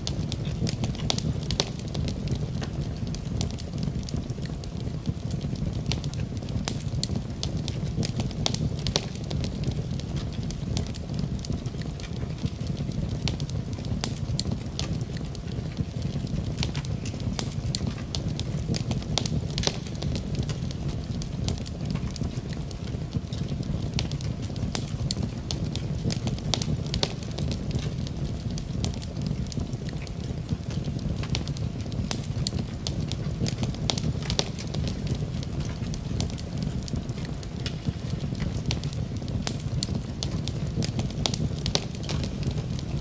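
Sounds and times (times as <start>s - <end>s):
low rumble of flame: 0.0s - 43.0s
steady rain: 0.0s - 43.0s
wood fire crackling: 0.0s - 43.0s.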